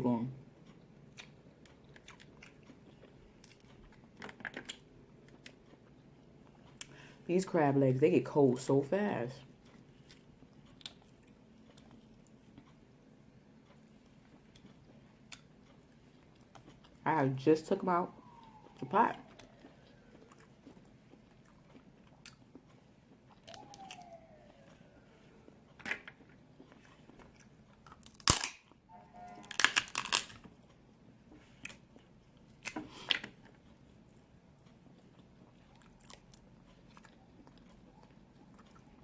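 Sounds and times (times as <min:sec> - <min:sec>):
chewing: 0:00.6 - 0:07.0, 0:09.4 - 0:17.0, 0:18.1 - 0:28.4, 0:33.5 - 0:39.0
crab shells cracking: 0:23.4 - 0:24.2, 0:27.8 - 0:28.7, 0:29.5 - 0:30.5.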